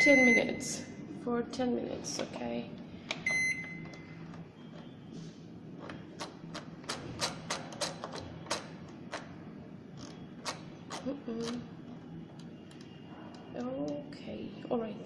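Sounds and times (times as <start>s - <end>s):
microwave beep: 0.0s - 0.7s, 3.2s - 5.0s
microwave oven humming: 0.0s - 1.3s, 2.4s - 14.4s.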